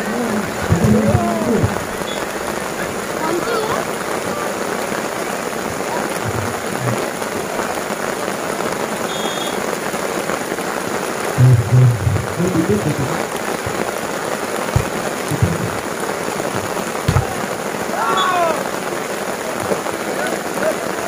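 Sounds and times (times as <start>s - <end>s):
heavy rain falling: 0.0s - 21.0s
low thumps: 0.3s - 3.0s, 11.4s - 14.0s, 14.7s - 17.7s.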